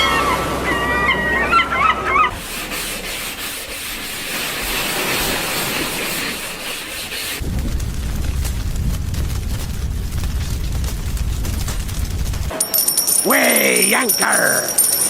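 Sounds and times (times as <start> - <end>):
squawking bird calls: 0.0 - 2.4
steady rushing hiss: 2.3 - 12.5.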